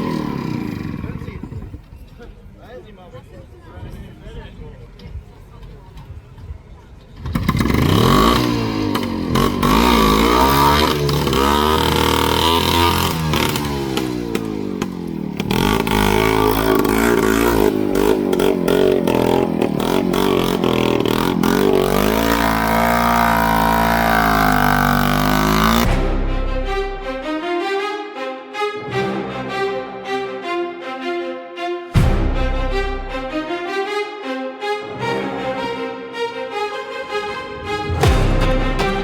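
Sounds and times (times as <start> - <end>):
tractor engine revving: 0.0 - 1.8, 7.2 - 27.4, 36.9 - 39.0.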